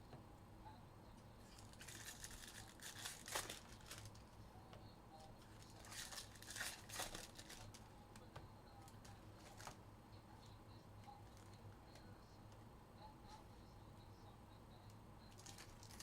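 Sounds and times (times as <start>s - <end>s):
plastic and foil wrapping crinkling: 1.5s - 4.2s, 5.5s - 7.8s, 15.4s - 16.0s.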